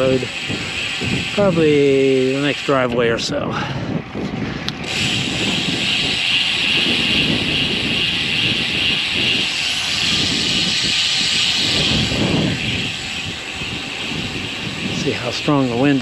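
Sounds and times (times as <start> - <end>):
gusty wind buffeting microphone: 0.0 - 16.0
high rushing hiss: 4.8 - 16.0.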